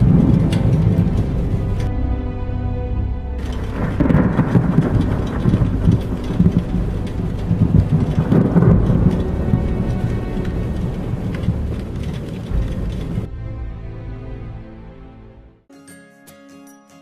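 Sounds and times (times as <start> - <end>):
rain falling: 0.0 - 2.2, 3.3 - 13.3
thunder rumbling: 0.0 - 2.4, 3.0 - 14.2
background music: 0.0 - 17.0.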